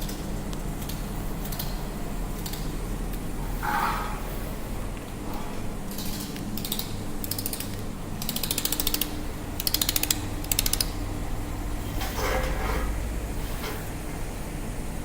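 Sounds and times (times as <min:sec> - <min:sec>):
low machine hum: 0:00.0 - 0:15.0
laser welder rapid ticking: 0:06.1 - 0:11.1.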